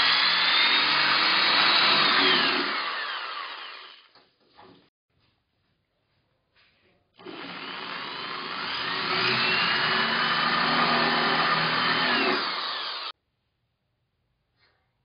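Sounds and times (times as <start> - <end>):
power tool motor whining: 0.0 - 4.1, 7.2 - 13.1.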